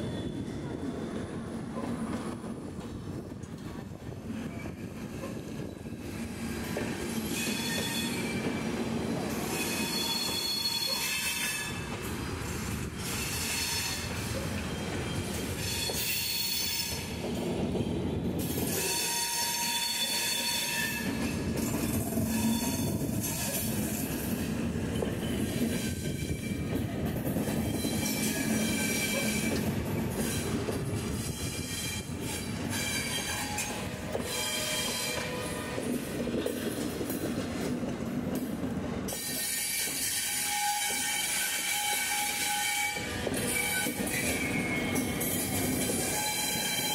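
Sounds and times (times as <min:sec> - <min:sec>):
train wheels rumbling: 0:00.0 - 0:46.9
high-pitched wheel squeal: 0:09.5 - 0:11.8, 0:39.2 - 0:46.9.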